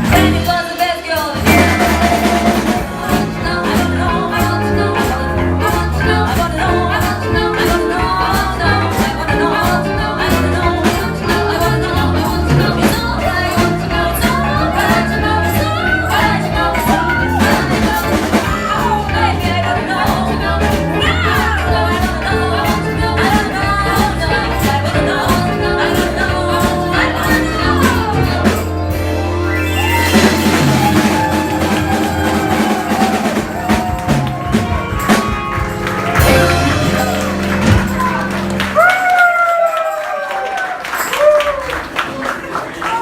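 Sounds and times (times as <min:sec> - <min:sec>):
bass guitar: 0:00.0 - 0:39.2
live rock band: 0:00.0 - 0:42.0
drum beat: 0:01.4 - 0:29.0, 0:29.8 - 0:38.9.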